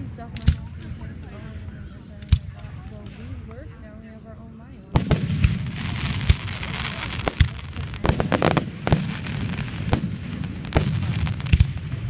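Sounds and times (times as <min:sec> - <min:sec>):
continuous rumble: 0:00.0 - 0:12.0
fireworks bangs: 0:04.9 - 0:12.0.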